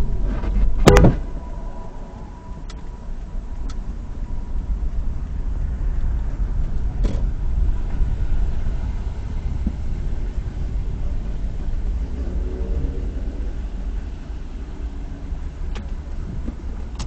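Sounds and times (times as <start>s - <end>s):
car driving rumble inside cabin: 0.0s - 17.0s.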